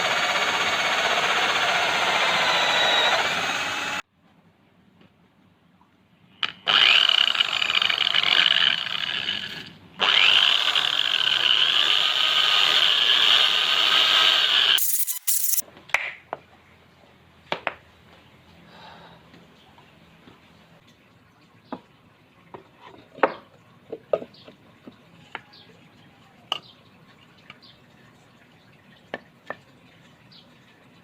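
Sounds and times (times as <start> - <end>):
electric drill working wood: 0.0 - 4.0, 10.0 - 15.6.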